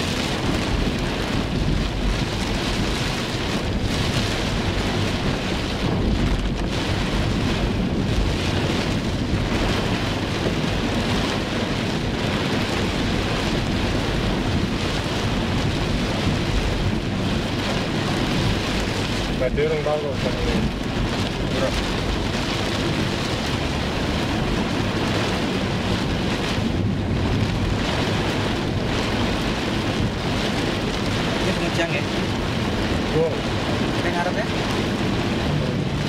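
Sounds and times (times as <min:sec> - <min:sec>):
heavy rain drumming on car roof: 0:00.0 - 0:36.0.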